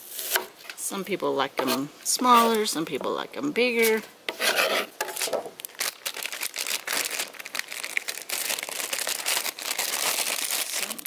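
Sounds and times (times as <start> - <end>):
knife scraping cutting board: 3.8 - 5.4
foil crinkling: 5.1 - 11.0.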